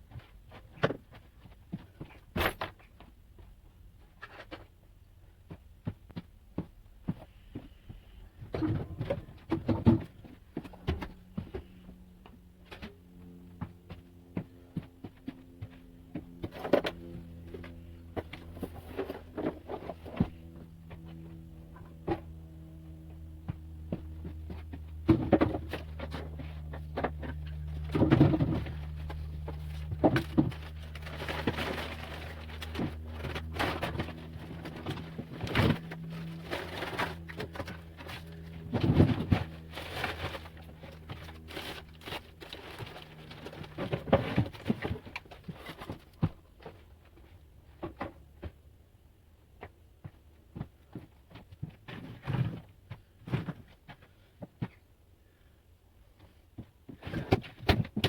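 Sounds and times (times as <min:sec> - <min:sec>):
low hum: 0:07.3 - 0:46.7.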